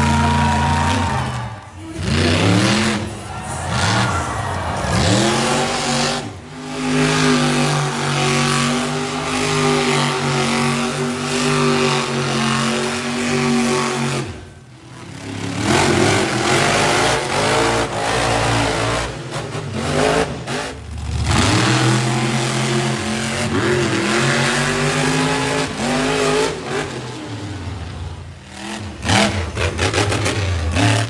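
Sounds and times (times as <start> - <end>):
monster truck engine revving: 0.0 - 31.0.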